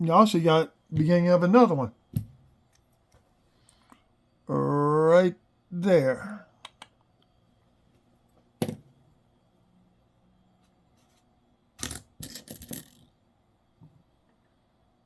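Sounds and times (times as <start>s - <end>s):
coins clinking: 11.8s - 13.0s.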